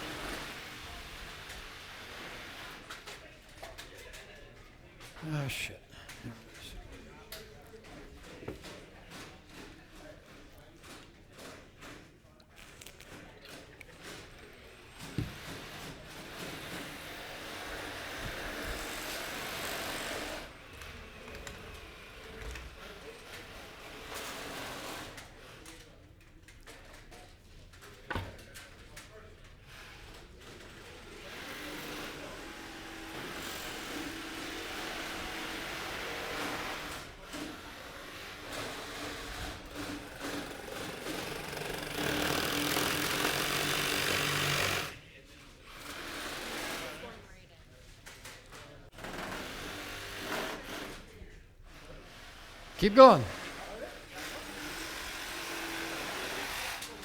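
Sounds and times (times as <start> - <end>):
jigsaw cutting wood: 15.3 - 20.5, 38.4 - 44.9.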